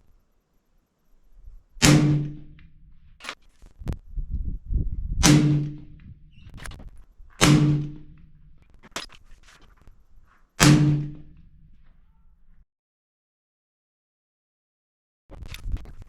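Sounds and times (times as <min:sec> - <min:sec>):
suppressed rifle shots: 0:01.8 - 0:03.4, 0:05.2 - 0:06.8, 0:07.4 - 0:09.2, 0:10.6 - 0:11.5.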